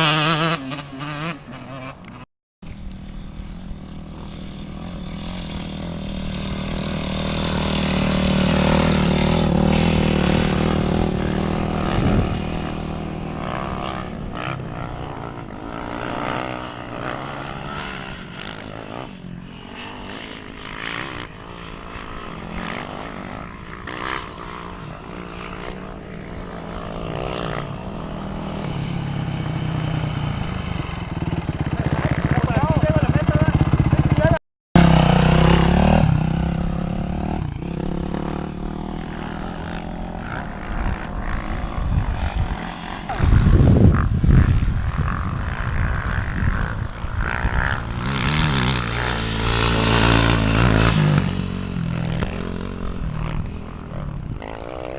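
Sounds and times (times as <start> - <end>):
off-road race engines revving: 0.0 - 54.9.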